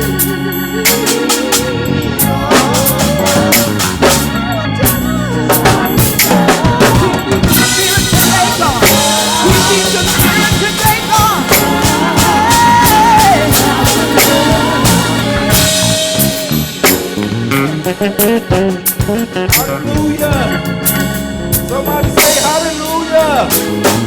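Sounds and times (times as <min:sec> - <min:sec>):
drum kit groove: 0:00.0 - 0:24.0
gospel band playing: 0:00.0 - 0:24.0.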